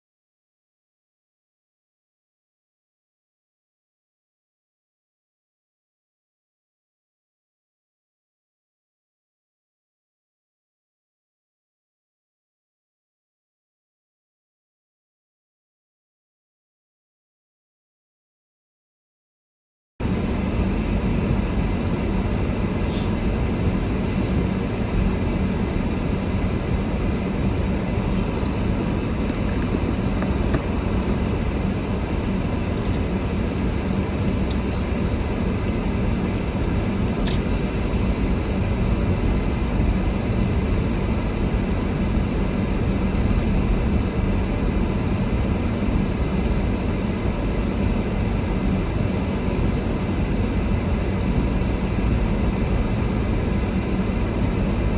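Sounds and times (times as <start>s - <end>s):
car engine and tyre noise: 20.0s - 54.9s.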